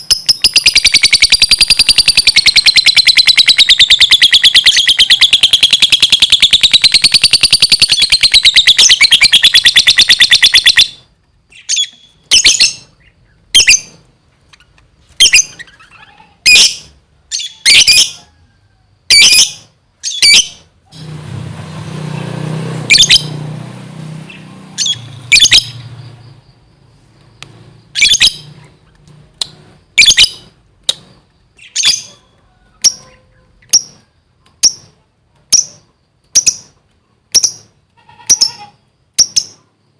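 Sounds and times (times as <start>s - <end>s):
lovebird chattering trill: 0.0s - 11.0s, 24.3s - 25.9s, 27.9s - 29.0s, 30.0s - 39.6s
sharp high bird chirps: 0.0s - 18.2s, 19.1s - 21.2s, 22.0s - 23.6s, 24.2s - 39.9s.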